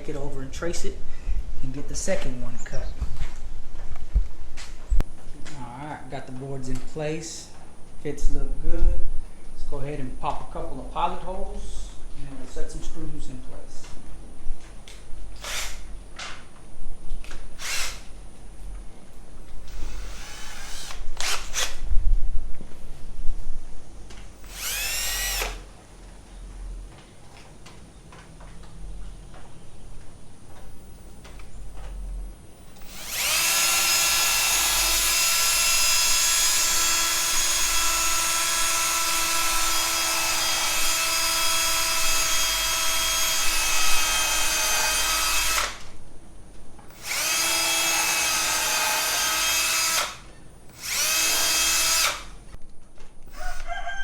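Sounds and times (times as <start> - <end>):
power drill boring into wood: 15.4 - 15.9, 17.6 - 18.1, 19.7 - 21.8, 24.4 - 25.7, 32.8 - 45.9, 46.9 - 52.4, 53.3 - 53.7.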